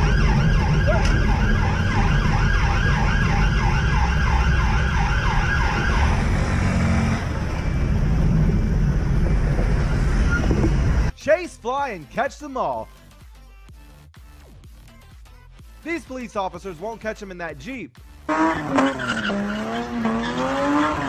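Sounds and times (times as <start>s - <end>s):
police siren yelp: 0.0s - 6.4s
vehicle and road rumble: 0.0s - 11.1s.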